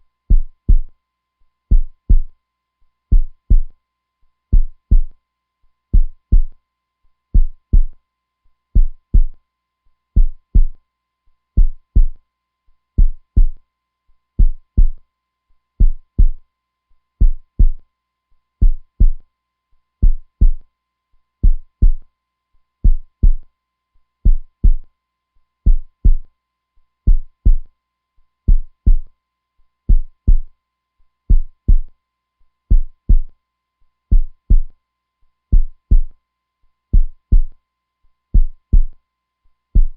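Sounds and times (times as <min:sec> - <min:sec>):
heartbeat thumping: 0:00.3 - 0:00.9, 0:01.7 - 0:02.3, 0:03.1 - 0:03.7, 0:04.5 - 0:05.1, 0:06.0 - 0:06.5, 0:07.4 - 0:08.0, 0:08.8 - 0:09.4, 0:10.2 - 0:10.8, 0:11.6 - 0:12.2, 0:13.0 - 0:13.6, 0:14.4 - 0:15.0, 0:15.8 - 0:16.4, 0:17.2 - 0:17.8, 0:18.6 - 0:19.2, 0:20.0 - 0:20.6, 0:21.4 - 0:22.0, 0:22.8 - 0:23.4, 0:24.3 - 0:24.8, 0:25.7 - 0:26.2, 0:27.1 - 0:27.7, 0:28.5 - 0:29.1, 0:29.9 - 0:30.5, 0:31.3 - 0:31.9, 0:32.7 - 0:33.3, 0:34.1 - 0:34.7, 0:35.5 - 0:36.1, 0:37.0 - 0:37.5, 0:38.4 - 0:38.9.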